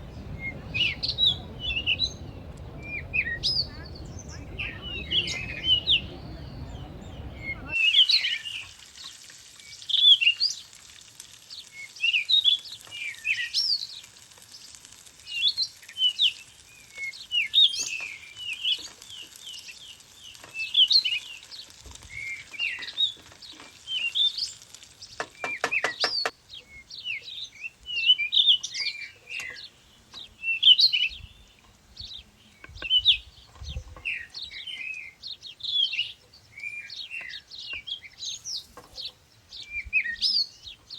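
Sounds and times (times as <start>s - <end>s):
songbirds singing and chirping: 0.0s - 10.8s, 11.4s - 40.9s
steady hiss: 0.0s - 26.3s, 38.2s - 39.2s.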